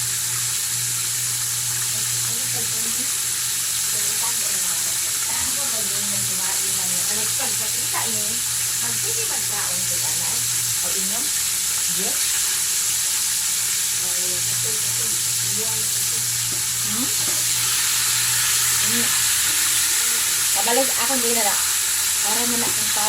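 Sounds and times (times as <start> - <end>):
chicken sizzling in hot oil: 0.0 - 23.0.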